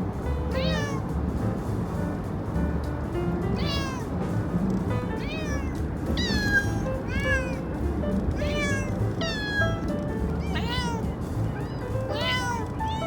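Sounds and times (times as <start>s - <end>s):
cats meowing: 0.5s - 1.1s, 3.5s - 4.1s, 5.1s - 13.0s.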